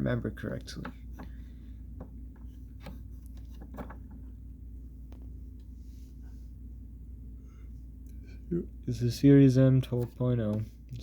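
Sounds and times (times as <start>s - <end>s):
low hum: 0.0s - 11.0s
faint clicks and taps: 5.1s - 5.7s.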